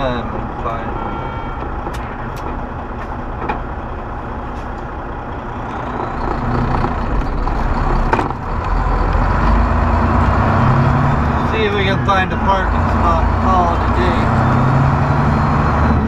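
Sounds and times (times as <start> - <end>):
road noise: 0.0 - 16.0
truck engine drone: 0.0 - 16.0.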